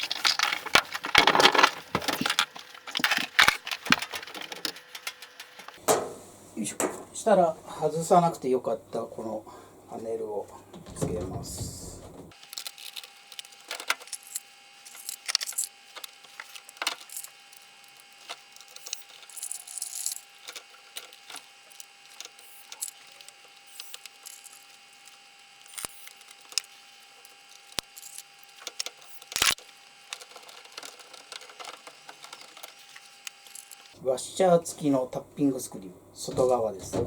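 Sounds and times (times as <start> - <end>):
plastic parts clicking and rattling: 0.0 - 5.9, 12.3 - 34.0.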